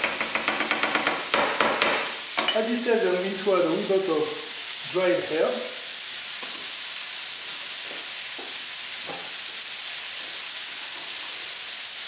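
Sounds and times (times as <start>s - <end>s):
vegetables sizzling in a pan: 0.0s - 12.0s.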